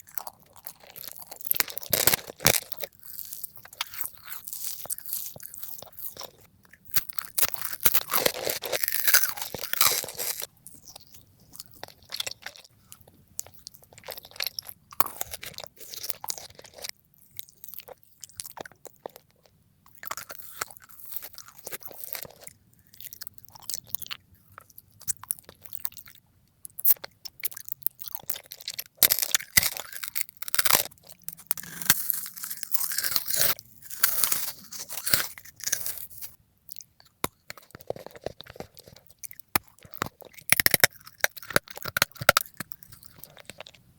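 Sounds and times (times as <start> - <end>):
crunching and chewing crisp food: 0.0 - 43.9.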